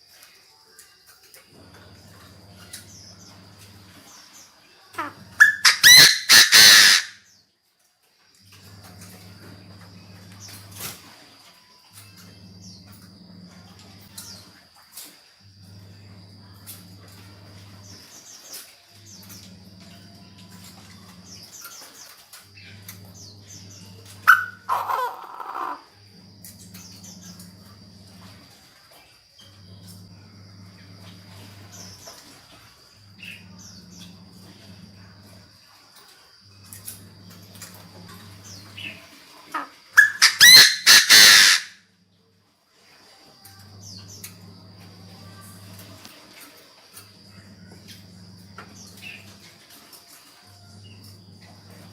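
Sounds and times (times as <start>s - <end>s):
high insect trill: 0.0s - 51.9s
bird harsh call: 5.0s - 7.3s, 23.2s - 25.9s, 38.5s - 41.8s
faint steady hum: 8.2s - 51.9s.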